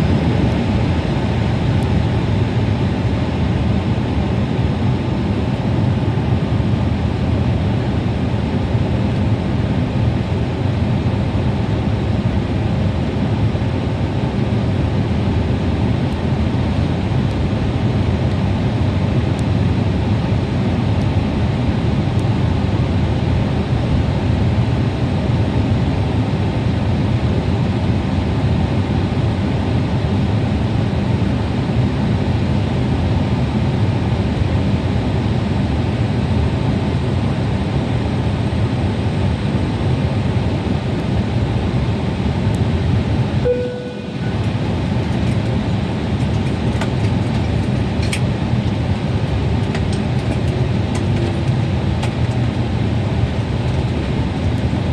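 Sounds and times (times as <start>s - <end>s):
vehicle rumbling in motion: 43.2s - 54.9s
short tone: 43.4s - 44.9s.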